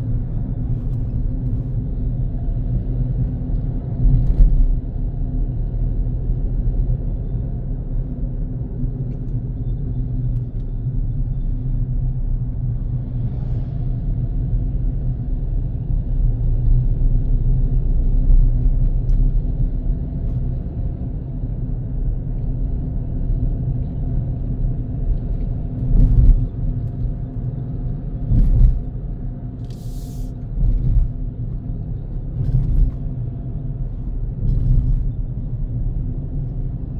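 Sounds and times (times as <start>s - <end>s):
car engine and tyre rumble: 0.0s - 36.9s
thumps from road bumps: 25.1s - 27.2s, 28.2s - 29.0s.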